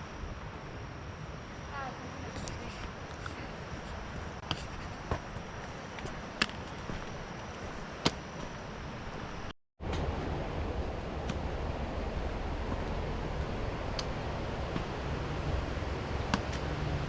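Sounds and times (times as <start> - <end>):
rushing wind: 0.0 - 17.0
footsteps on rock: 2.3 - 9.3.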